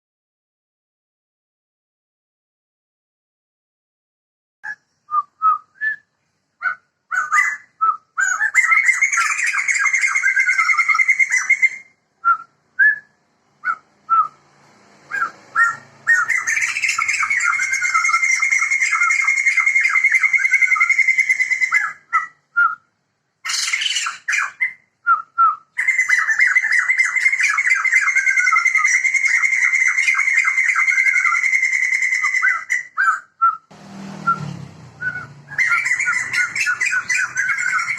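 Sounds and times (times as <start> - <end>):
birds singing loud cackling chatter: 6.6 - 11.9, 15.1 - 22.4, 23.4 - 24.8, 25.8 - 33.4, 34.1 - 37.9
short whistled bird notes: 33.4 - 37.9.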